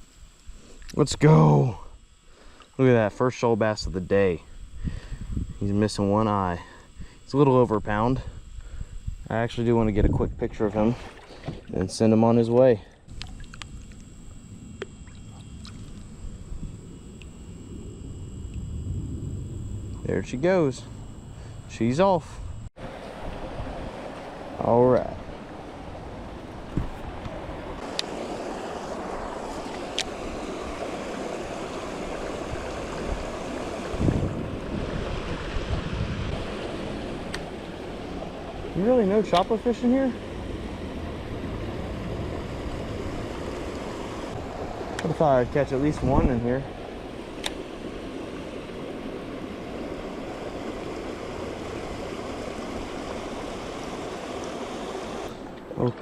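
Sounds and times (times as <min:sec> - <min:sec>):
creek water rushing: 0:22.8 - 0:56.0.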